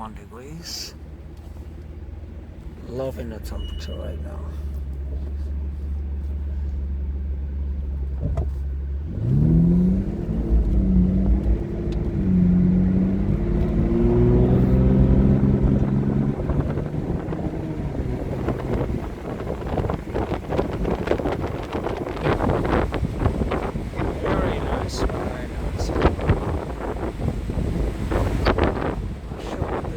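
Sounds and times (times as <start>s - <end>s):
car engine accelerating: 0.0s - 29.9s
wind buffeting: 9.4s - 29.9s.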